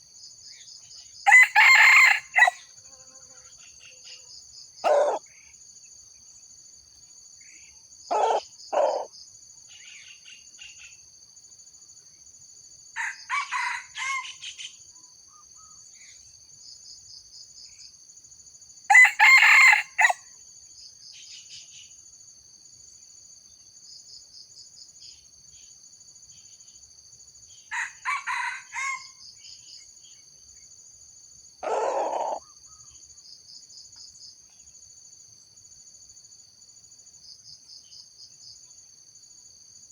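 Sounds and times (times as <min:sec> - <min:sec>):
insects trilling: 0:00.0 - 0:22.2, 0:22.8 - 0:39.9
junglefowl crowing: 0:01.3 - 0:02.6, 0:04.8 - 0:05.2, 0:08.1 - 0:09.1, 0:13.0 - 0:14.5, 0:18.9 - 0:20.2, 0:27.7 - 0:29.2, 0:31.6 - 0:32.5
low bird calls: 0:08.1 - 0:09.1, 0:31.6 - 0:32.9.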